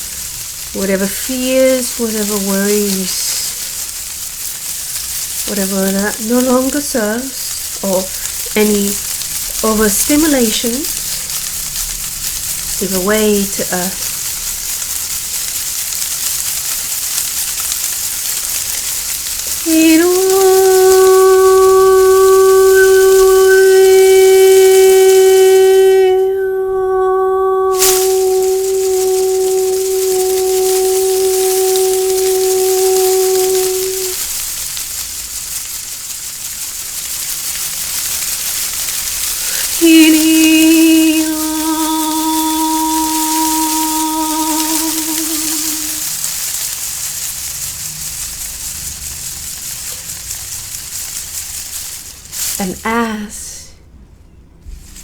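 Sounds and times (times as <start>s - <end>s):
steady hiss: 0.0s - 26.8s, 27.4s - 55.0s
sustained pitched tone: 19.5s - 34.3s, 39.5s - 46.2s
long held synth notes: 19.6s - 34.2s, 39.8s - 46.1s.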